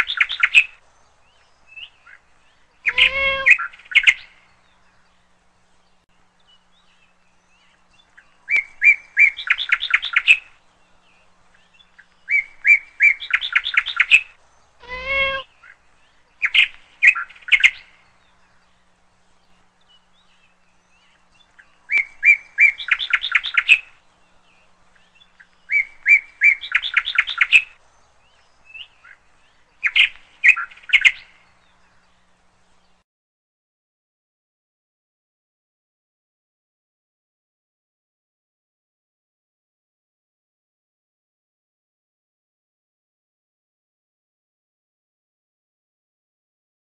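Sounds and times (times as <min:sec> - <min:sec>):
songbird singing with trill: 0:00.0 - 0:33.0
low drawn-out bird call: 0:02.0 - 0:04.3, 0:12.3 - 0:15.8.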